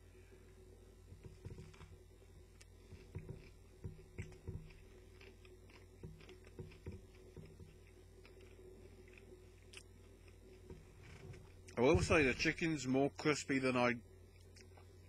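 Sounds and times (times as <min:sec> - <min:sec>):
faint chewing of crispy food: 0:01.6 - 0:11.8, 0:14.3 - 0:15.0.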